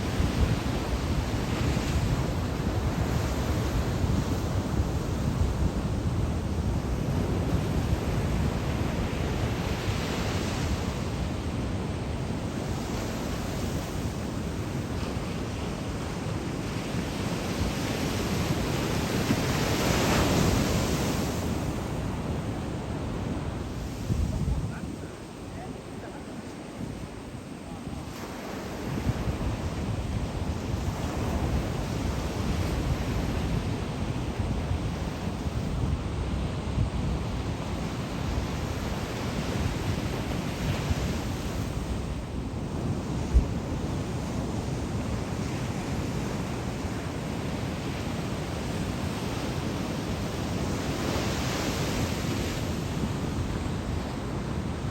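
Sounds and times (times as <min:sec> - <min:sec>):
ocean waves rushing: 0:00.0 - 0:42.4
wave breaking and washing in: 0:00.0 - 0:54.9
wind buffeting microphone: 0:00.0 - 0:54.9.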